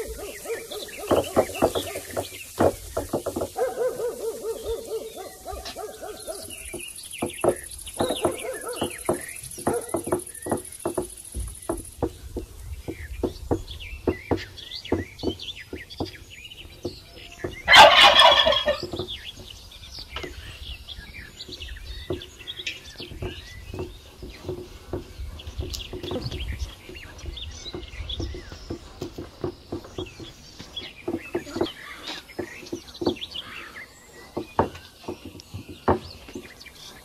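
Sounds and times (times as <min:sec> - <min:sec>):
small birds chirping: 0:00.0 - 0:37.0
turkey gobbling: 0:17.7 - 0:18.9.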